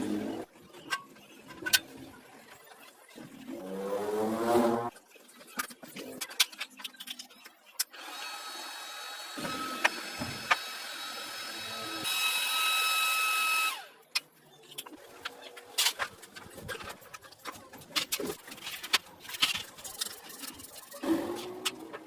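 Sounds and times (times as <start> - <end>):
power tool motor whining: 8.0 - 13.9.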